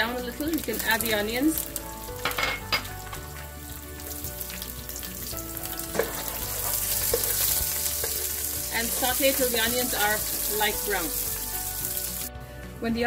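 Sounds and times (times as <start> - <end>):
onion sizzling in hot oil: 0.0 - 12.4.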